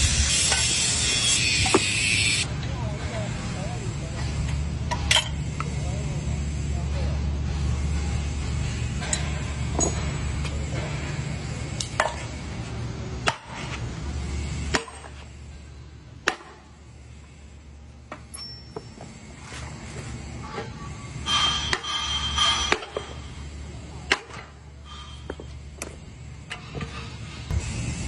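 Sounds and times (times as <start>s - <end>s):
low hum: 0.0s - 28.0s
tool striking metal: 14.7s - 15.2s, 21.2s - 23.4s.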